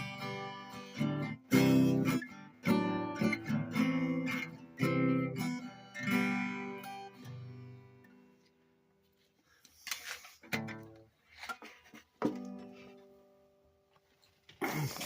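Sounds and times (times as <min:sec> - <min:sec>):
acoustic guitar strums: 0:00.0 - 0:08.1, 0:10.4 - 0:13.2.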